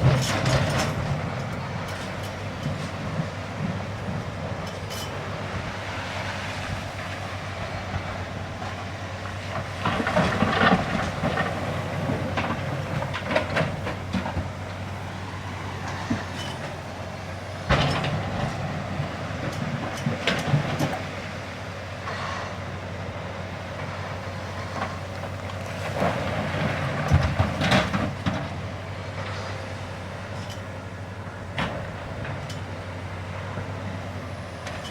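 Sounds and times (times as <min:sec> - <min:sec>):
diesel engine running: 0:00.0 - 0:34.9
metallic clanks and knocks: 0:15.9 - 0:16.8, 0:17.6 - 0:18.6.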